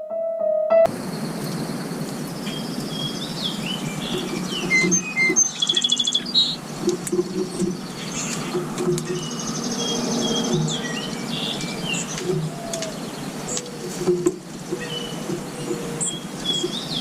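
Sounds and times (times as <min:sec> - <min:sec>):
held piano note: 0:00.0 - 0:00.9
steady outdoor rush: 0:00.8 - 0:17.0
small birds chirping: 0:00.9 - 0:17.0
bird trill: 0:02.4 - 0:13.9, 0:14.7 - 0:17.0.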